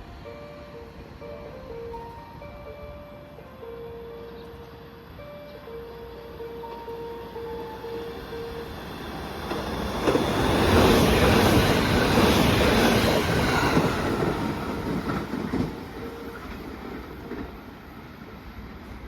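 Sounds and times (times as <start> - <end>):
passenger train passing: 0.0 - 19.0
train wheel clatter: 9.4 - 17.7.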